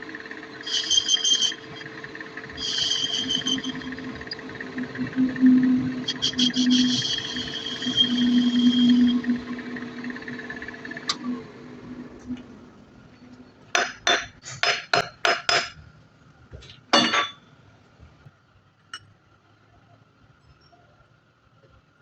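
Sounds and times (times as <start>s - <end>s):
machine hum: 0.0s - 13.8s.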